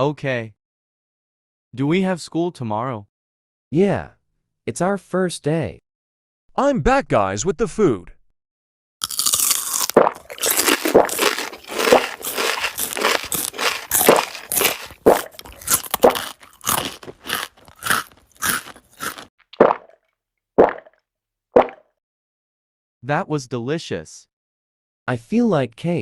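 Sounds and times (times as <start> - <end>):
crunchy chewing: 9.0 - 19.8.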